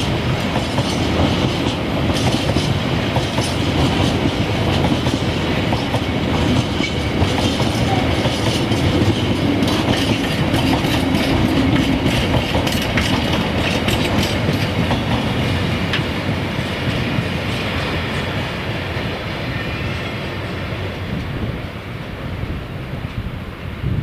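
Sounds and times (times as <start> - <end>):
freight train wagons rolling: 0.0 - 21.6
wheels clicking over rail joints: 0.3 - 18.2.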